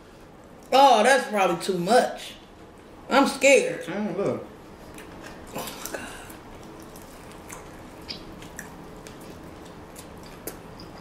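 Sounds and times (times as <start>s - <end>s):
people chewing food: 4.8s - 11.0s.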